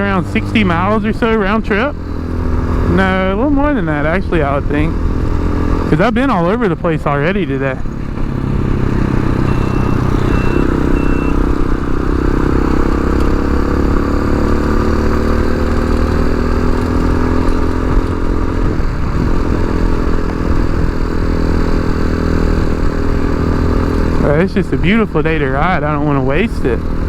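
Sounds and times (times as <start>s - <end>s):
motorcycle engine running: 0.0s - 27.0s
road rumble: 0.0s - 27.0s
wind: 0.0s - 27.0s
short high beeps: 9.4s - 11.4s.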